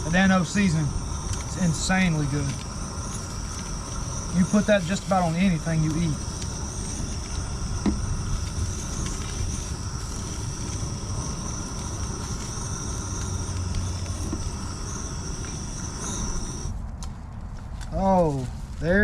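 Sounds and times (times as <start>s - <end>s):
insects trilling: 0.0s - 16.8s.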